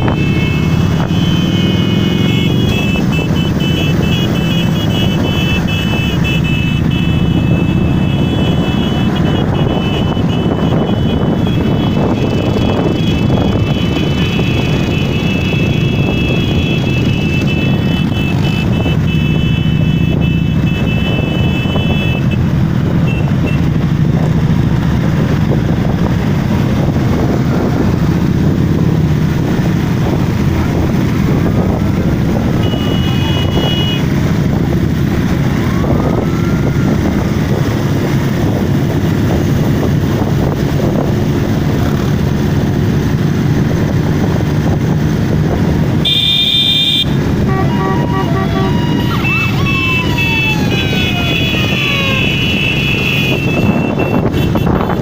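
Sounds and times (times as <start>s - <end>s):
motorcycle engines running: 0.0s - 55.0s
high held tone: 46.0s - 54.3s.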